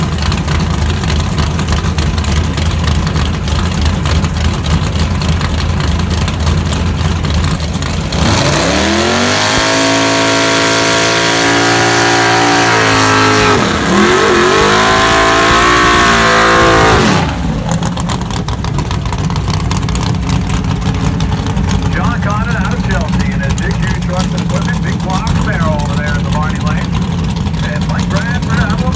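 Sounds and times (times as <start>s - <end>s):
drag race car engine revving: 0.0s - 28.9s.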